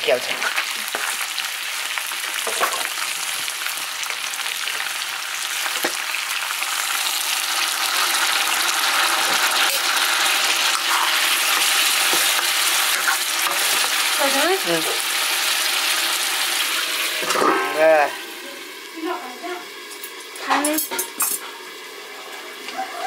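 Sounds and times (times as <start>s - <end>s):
meat sizzling in a pan: 0.0s - 23.0s.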